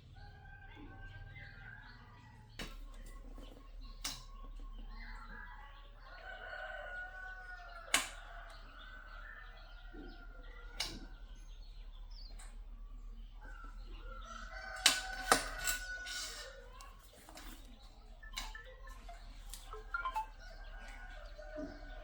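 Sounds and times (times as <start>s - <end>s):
rooster crowing: 6.2s - 8.5s, 14.1s - 16.6s.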